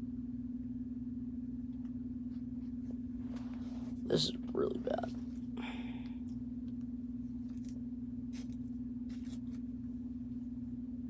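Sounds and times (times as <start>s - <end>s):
low room hum: 0.0s - 11.0s
card scraping into plastic sleeve: 7.5s - 9.7s.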